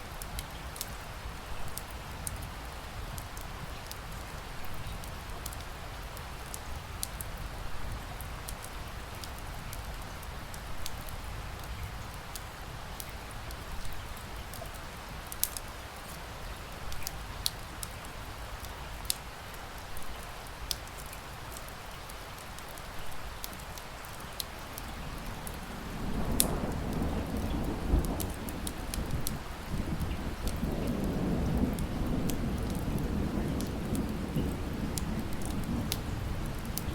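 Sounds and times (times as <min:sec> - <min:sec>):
steady rain: 0:00.0 - 0:36.9
wood fire crackling: 0:00.0 - 0:36.9
low rumble of thunder: 0:24.8 - 0:36.9.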